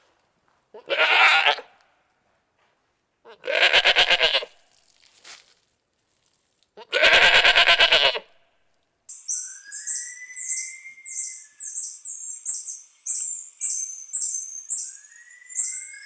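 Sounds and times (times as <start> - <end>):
sheep or goat bleating: 0.8 - 1.8, 3.3 - 4.6, 6.8 - 8.4.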